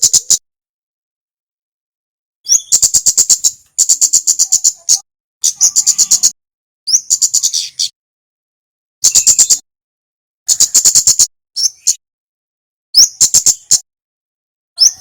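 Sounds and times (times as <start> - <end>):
bird song bursts: 2.4 - 8.0, 9.0 - 9.6, 10.5 - 12.0, 13.0 - 13.8, 14.8 - 15.0.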